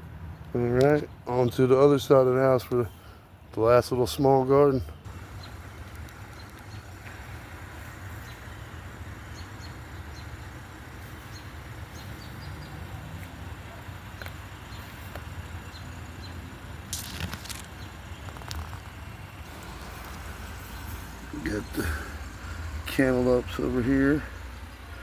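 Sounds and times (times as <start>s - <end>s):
low rumble: 16.6s - 25.0s
rustling: 16.8s - 21.3s.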